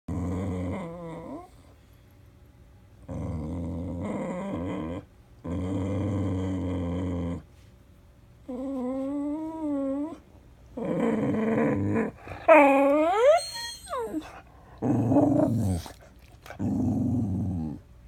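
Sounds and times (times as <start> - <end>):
dog growling: 0.1 - 1.7, 3.0 - 7.5, 10.8 - 17.9.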